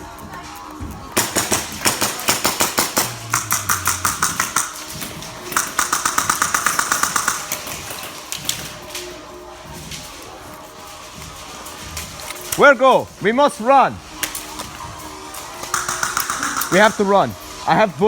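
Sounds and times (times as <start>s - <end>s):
airsoft guns firing: 1.2s - 8.8s, 15.6s - 17.3s.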